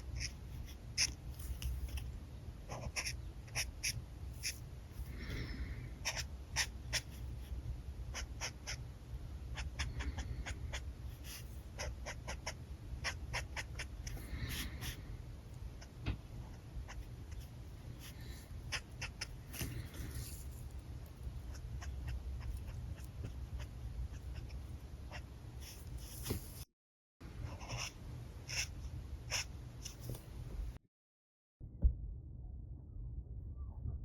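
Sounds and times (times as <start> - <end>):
scratchy marker strokes: 27.5 - 30.1.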